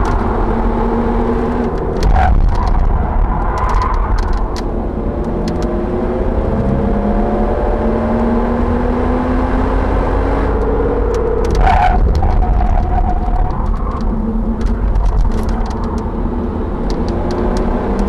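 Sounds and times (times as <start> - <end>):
car engine accelerating: 0.0 - 18.0
road noise: 0.0 - 18.0
sharp clicks: 1.6 - 5.7, 10.6 - 16.1.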